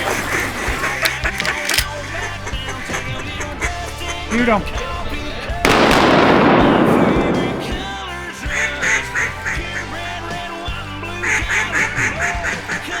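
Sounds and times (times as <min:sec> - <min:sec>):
ducks quacking: 0:00.0 - 0:01.4, 0:11.1 - 0:13.0
background music: 0:00.0 - 0:13.0.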